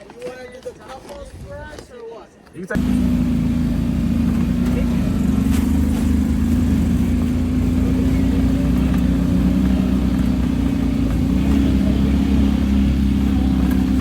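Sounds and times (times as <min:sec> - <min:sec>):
vehicle engine running: 0:02.8 - 0:14.0.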